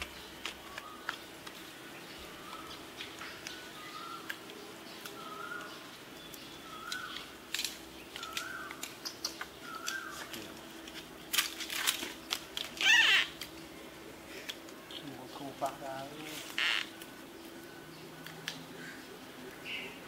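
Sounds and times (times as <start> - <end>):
sharp clicks: 6.3 - 10.4.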